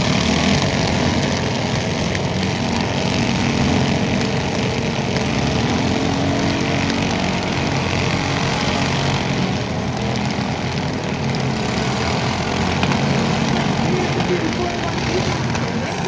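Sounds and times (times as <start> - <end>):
lawn tractor engine running: 0.0 - 16.0.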